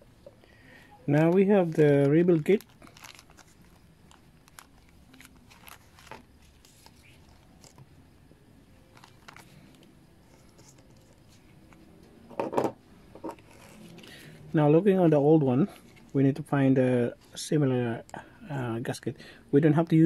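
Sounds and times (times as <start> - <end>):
plastic bag crinkling: 1.2 - 7.8.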